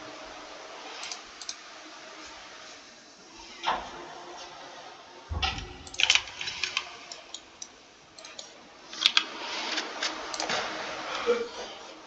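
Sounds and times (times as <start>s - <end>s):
keyboard keys clicking: 5.4s - 10.5s.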